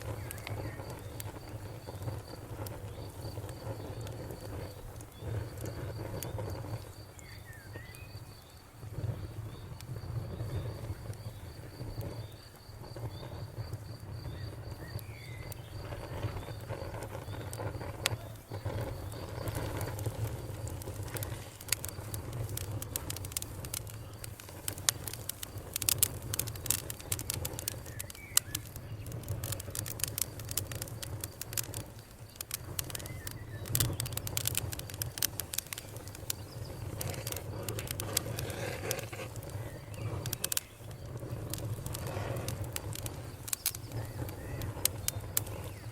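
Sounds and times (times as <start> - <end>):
campfire crackling and popping: 0.0 - 45.9
low rumble of burning: 0.0 - 45.9
birds chirping: 14.2 - 30.8, 31.5 - 45.9.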